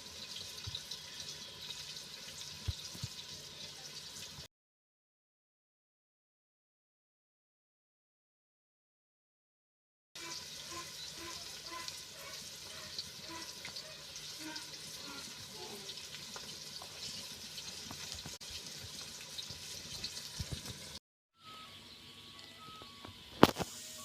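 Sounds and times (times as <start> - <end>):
tap water running into sink: 0.0 - 4.5, 14.4 - 21.0.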